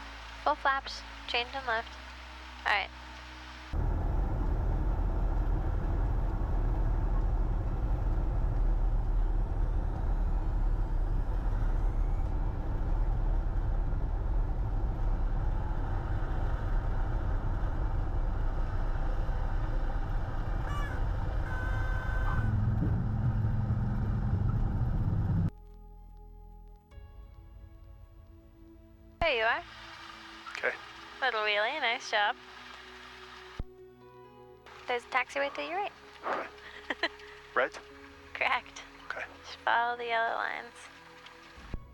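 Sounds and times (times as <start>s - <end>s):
aircraft engine and airflow drone: 0.0s - 25.5s, 29.2s - 33.7s, 34.7s - 41.9s
low rumble of landing: 3.7s - 25.6s.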